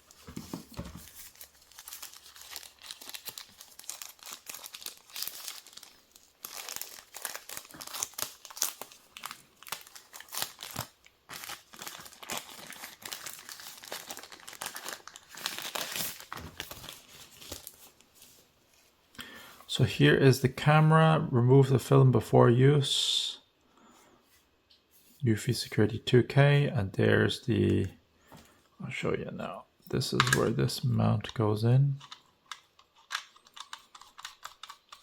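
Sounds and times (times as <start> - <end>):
packaging crinkling and tearing: 1.0 - 18.0.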